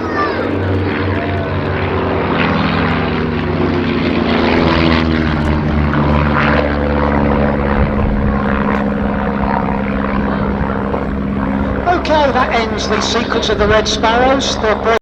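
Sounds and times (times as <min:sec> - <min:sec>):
propeller plane engines droning: 0:00.0 - 0:15.0.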